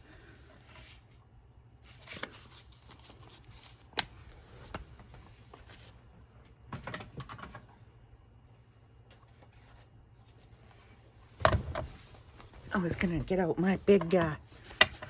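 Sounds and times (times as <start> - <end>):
paper rustling: 1.8 - 6.0.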